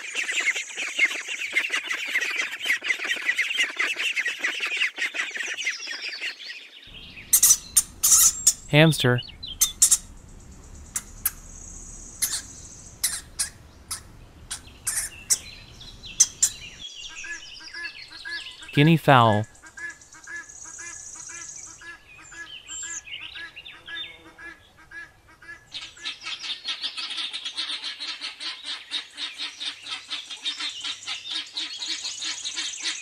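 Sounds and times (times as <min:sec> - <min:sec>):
background hiss: 0:06.9 - 0:16.8, 0:18.7 - 0:19.5
ducklings peeping: 0:06.9 - 0:18.2
hamster squeaking: 0:07.0 - 0:08.8, 0:09.4 - 0:16.8.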